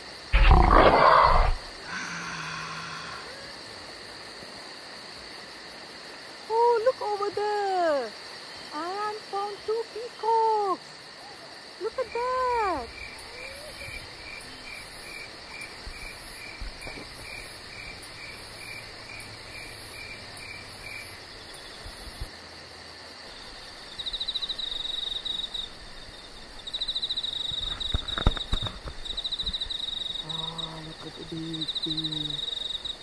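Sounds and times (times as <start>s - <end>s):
insects chirping: 0.0s - 33.0s
loud high insect trill: 0.0s - 33.0s
cluster of clicks: 27.6s - 29.6s.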